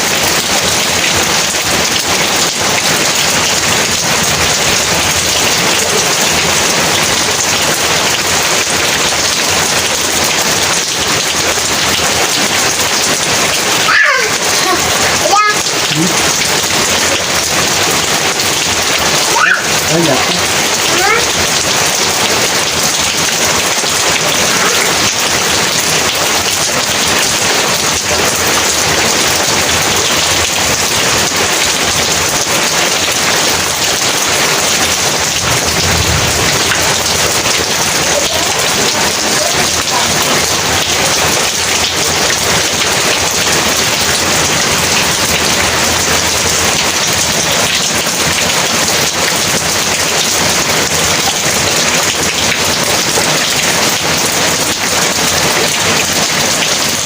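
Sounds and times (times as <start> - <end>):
heavy rain falling: 0.0 - 57.0
low rumble of thunder: 35.4 - 37.6.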